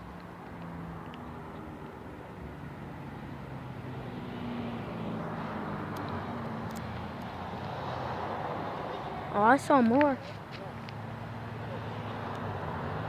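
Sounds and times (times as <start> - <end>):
vehicle engine drone: 0.0 - 13.0.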